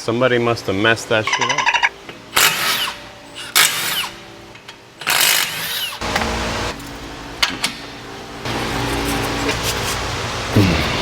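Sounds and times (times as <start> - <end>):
impact wrench bursts: 2.3 - 4.2, 5.0 - 6.0.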